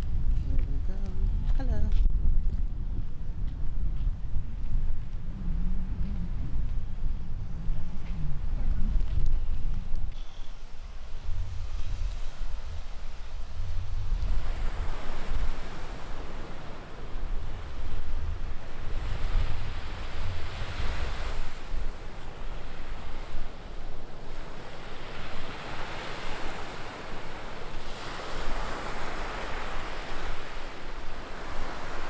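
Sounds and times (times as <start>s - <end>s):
wind buffeting microphone: 0.0s - 32.0s
ocean surf breaking: 12.6s - 32.0s.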